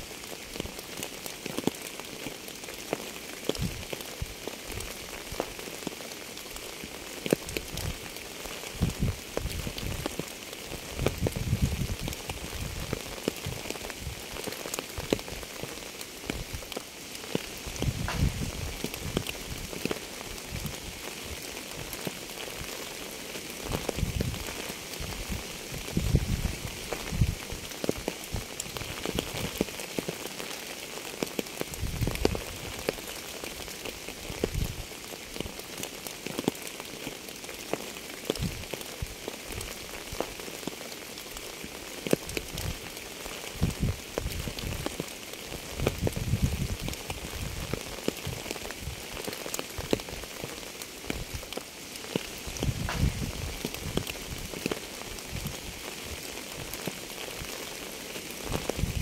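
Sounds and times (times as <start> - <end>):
rain falling: 0.0 - 59.0
raindrops clicking on a surface: 0.0 - 59.0.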